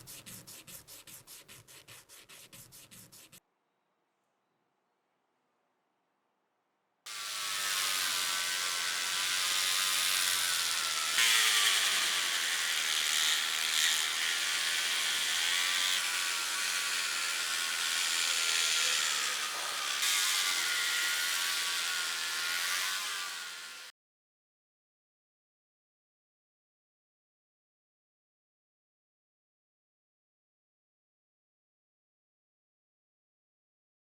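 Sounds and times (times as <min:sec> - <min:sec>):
rotary tool grinding: 0:07.1 - 0:23.9.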